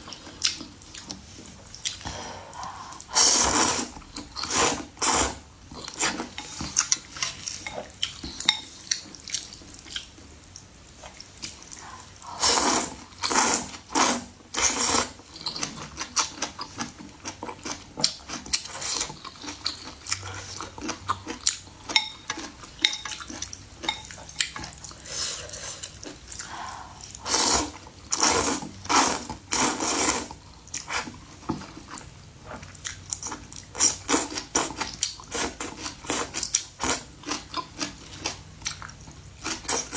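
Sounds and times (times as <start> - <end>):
person chewing and smacking: 0.0 - 2.1, 5.7 - 12.0, 15.2 - 25.0, 31.6 - 39.9
slurping: 1.8 - 9.5, 11.4 - 15.6, 24.8 - 31.2.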